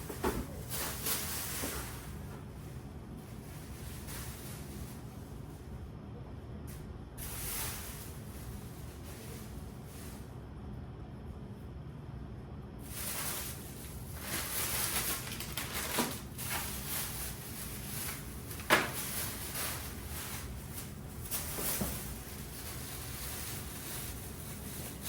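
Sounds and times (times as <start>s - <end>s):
packaging rustling: 12.9s - 25.0s.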